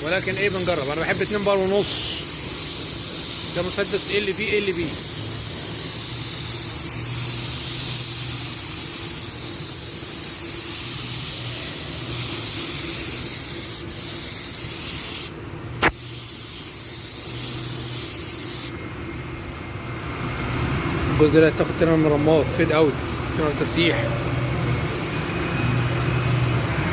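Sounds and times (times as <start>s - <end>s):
paint spray gun hissing: 0.1s - 18.8s, 24.6s - 25.3s.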